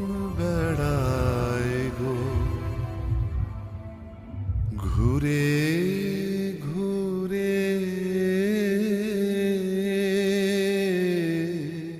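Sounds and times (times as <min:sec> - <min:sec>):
person singing long note: 0:00.0 - 0:08.3.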